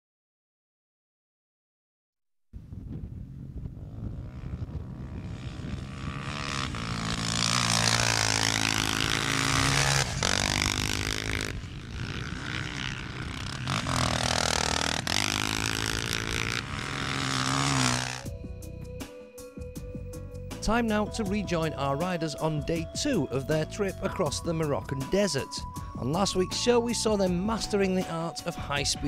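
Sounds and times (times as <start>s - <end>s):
off-road motorcycle engines revving: 3.7s - 18.3s.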